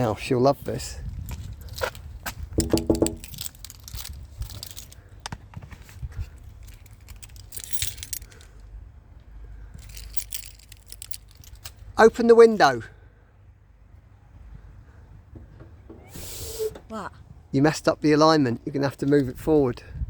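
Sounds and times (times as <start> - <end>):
short hissy noises: 16.0 - 16.9.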